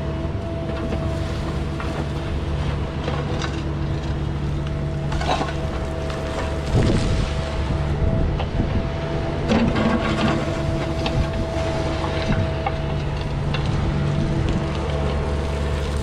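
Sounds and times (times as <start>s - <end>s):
engine running steadily: 0.0s - 16.0s
knocks and clanks: 5.0s - 7.0s.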